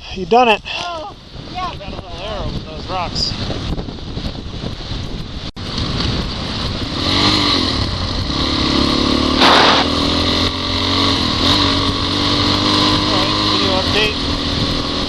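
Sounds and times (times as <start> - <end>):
motorcycle engine revving: 5.6 - 15.0
loud rush of noise: 8.0 - 10.4.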